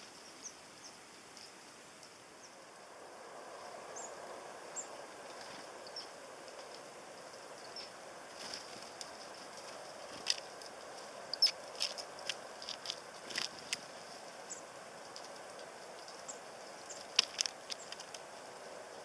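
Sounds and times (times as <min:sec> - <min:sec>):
birds pecking at a feeder: 0:07.5 - 0:19.0.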